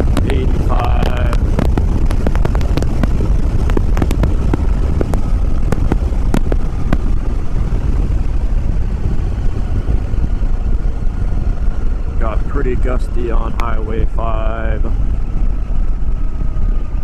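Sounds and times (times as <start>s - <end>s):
sharp pops: 0.0s - 7.6s
motorcycle engine running: 0.0s - 17.0s
wind rumble on microphone: 0.0s - 17.0s.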